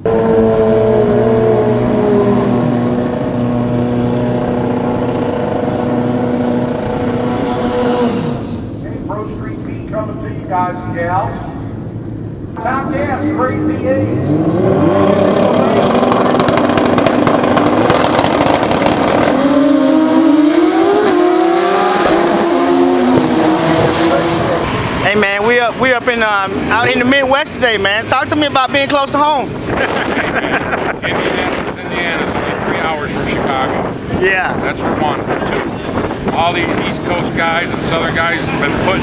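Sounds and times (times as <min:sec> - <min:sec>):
motorcycle engines revving: 0:00.0 - 0:39.0
motorcycle engine running loud: 0:14.0 - 0:21.3.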